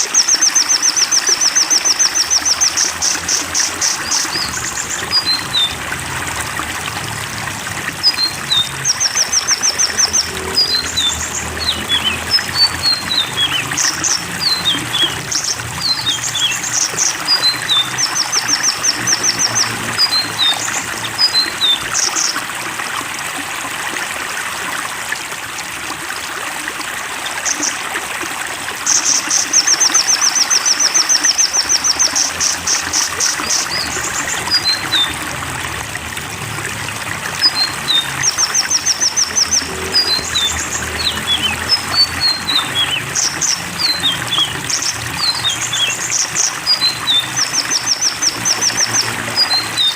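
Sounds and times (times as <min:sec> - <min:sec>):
songbird chirps and trills: 0:00.0 - 0:05.9, 0:08.0 - 0:22.5, 0:28.9 - 0:35.4, 0:37.4 - 0:49.9
running water: 0:00.0 - 0:49.9.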